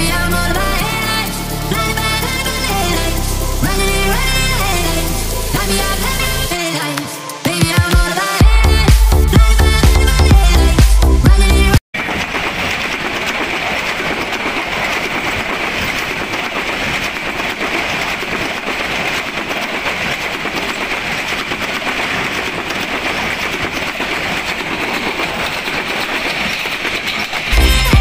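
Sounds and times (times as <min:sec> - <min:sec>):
background music: 0:00.0 - 0:11.8, 0:27.6 - 0:28.0.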